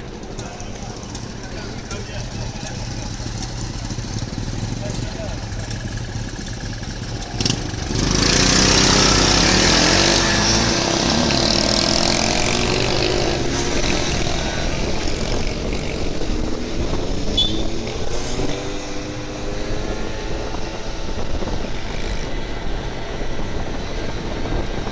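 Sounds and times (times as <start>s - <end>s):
motorbike engine running: 0.0s - 24.9s
steady rushing noise: 7.4s - 24.9s.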